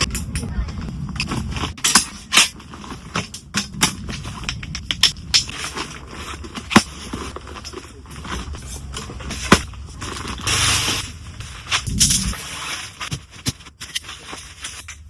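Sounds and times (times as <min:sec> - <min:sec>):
objects scraping and rustling: 0:00.0 - 0:15.0.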